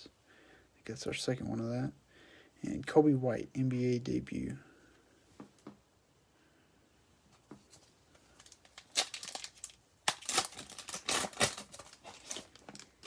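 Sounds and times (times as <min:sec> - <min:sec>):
foil wrapper tearing and crinkling: 0:08.3 - 0:13.0.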